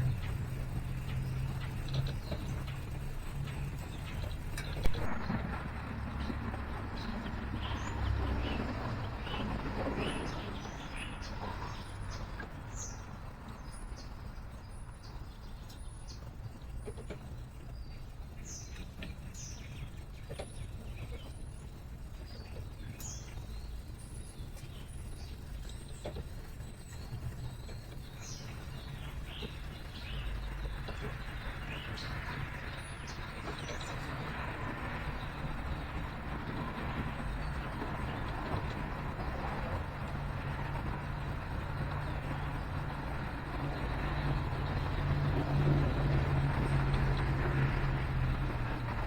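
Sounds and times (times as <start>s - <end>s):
vehicle passing: 0.0s - 13.5s, 26.6s - 49.0s
city traffic rumble: 0.0s - 49.0s
songbirds chirping: 0.0s - 49.0s.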